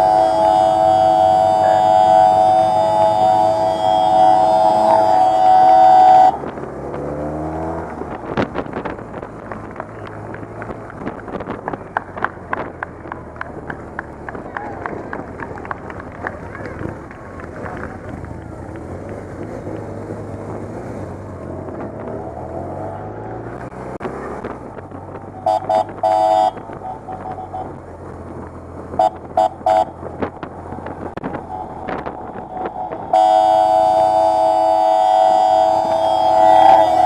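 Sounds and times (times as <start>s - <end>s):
held horn note: 0.0s - 6.5s, 25.4s - 27.6s, 31.4s - 37.0s
horn toots: 0.0s - 6.5s, 25.3s - 27.7s, 28.9s - 30.0s, 31.3s - 37.0s
motorcycles revving: 0.0s - 37.0s.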